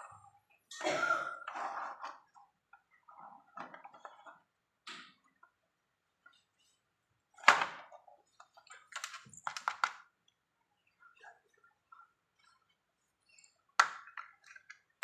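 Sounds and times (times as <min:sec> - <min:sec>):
plastic objects clicking and rustling: 0:07.4 - 0:10.2, 0:13.6 - 0:15.0.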